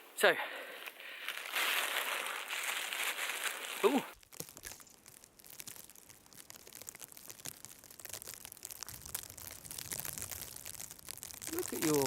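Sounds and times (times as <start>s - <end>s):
footsteps crunching in snow: 0.6s - 4.9s.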